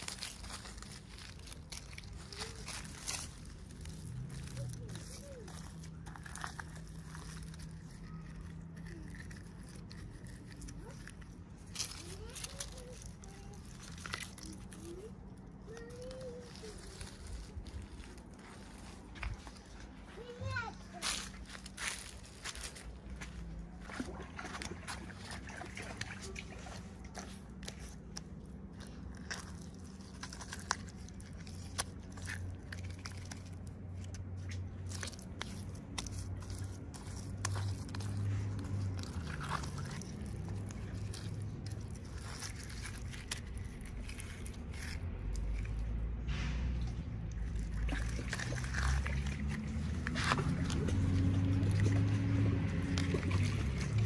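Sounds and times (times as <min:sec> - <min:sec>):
plastic packaging crinkling: 0:00.0 - 0:20.2, 0:26.2 - 0:46.2.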